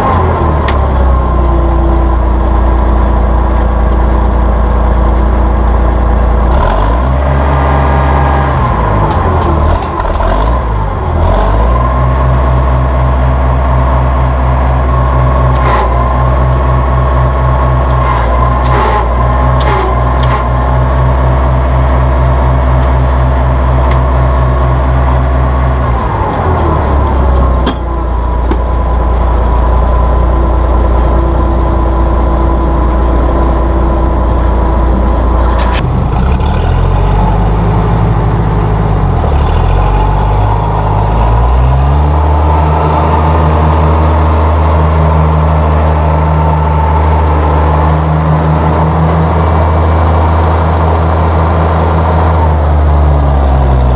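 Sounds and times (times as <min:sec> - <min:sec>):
tractor engine running: 0:00.0 - 0:53.9.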